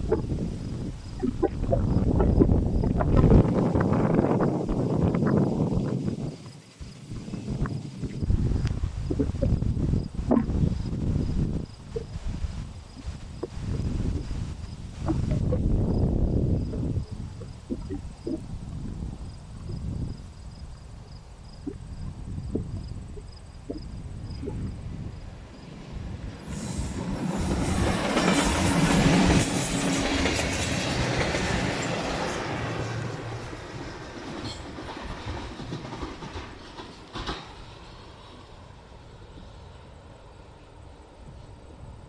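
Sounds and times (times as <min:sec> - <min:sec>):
train rumbling past: 0:00.0 - 0:42.0
wheels clicking over rail joints: 0:27.0 - 0:38.3.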